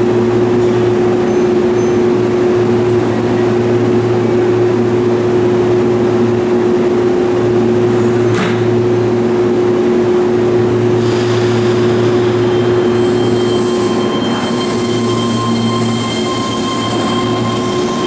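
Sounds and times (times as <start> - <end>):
electric train humming: 10.3 - 18.0
low drone: 10.9 - 18.0.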